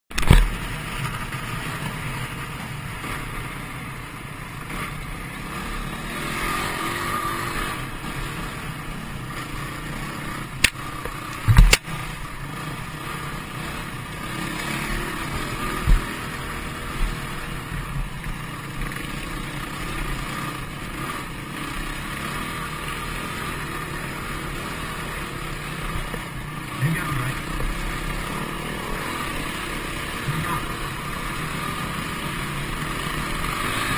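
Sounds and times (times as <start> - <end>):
dirt bike engine running: 0.1 - 33.9
sharp knocks: 11.4 - 11.9.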